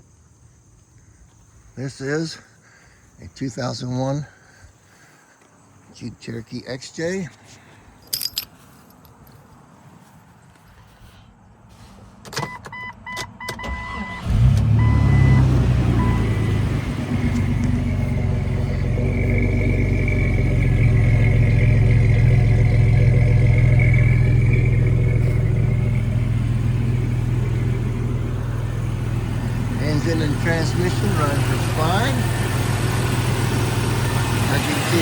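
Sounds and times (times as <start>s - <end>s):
car engine starting and idling: 11.8s - 35.0s.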